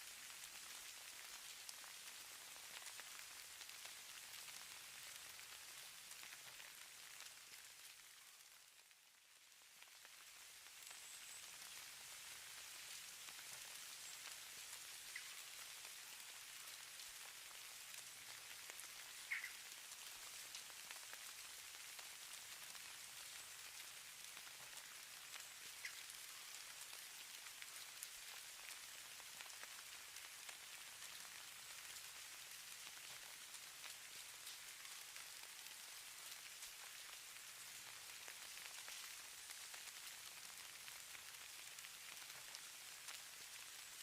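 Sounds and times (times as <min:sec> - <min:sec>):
snow falling soft hiss: 0:00.0 - 0:44.0
faint ticks of ice grains: 0:09.8 - 0:44.0.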